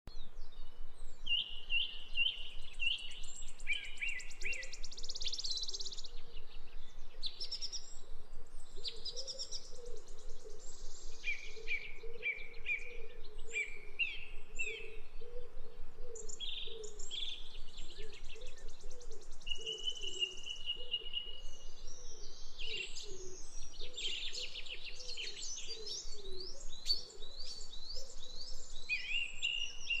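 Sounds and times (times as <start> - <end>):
background hiss: 0.2 - 12.3
birds chirping and calling: 8.6 - 30.0.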